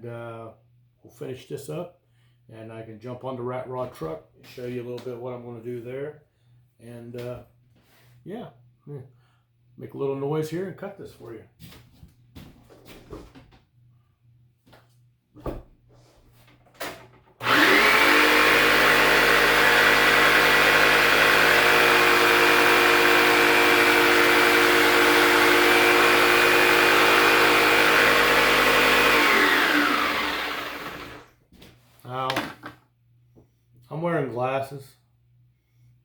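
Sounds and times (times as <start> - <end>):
power tool cutting wood: 17.4 - 31.3.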